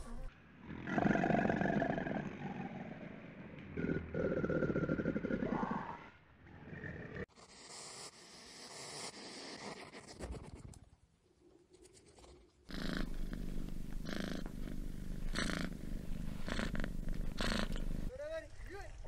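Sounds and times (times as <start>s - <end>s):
quiet rustling: 12.0s - 18.1s
cat purring: 12.7s - 18.1s.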